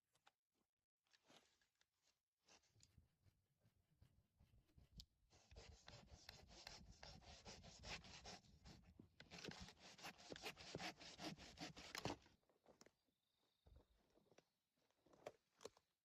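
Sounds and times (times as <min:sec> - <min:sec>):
hand saw cutting wood: 0:05.6 - 0:08.5, 0:09.3 - 0:12.2.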